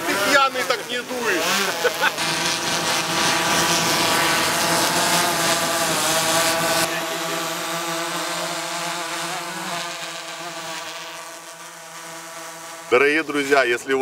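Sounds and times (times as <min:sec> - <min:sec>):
drone propellers whining: 0:00.0 - 0:10.6.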